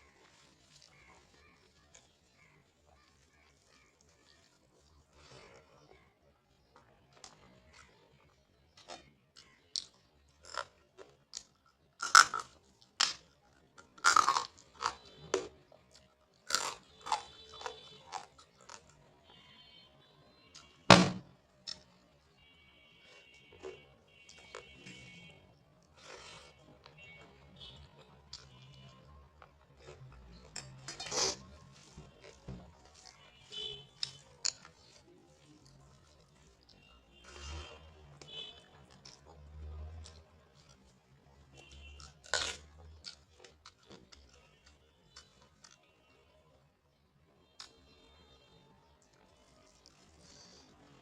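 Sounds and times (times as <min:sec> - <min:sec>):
person chewing crunchy food: 0:00.0 - 0:19.6, 0:25.8 - 0:45.9.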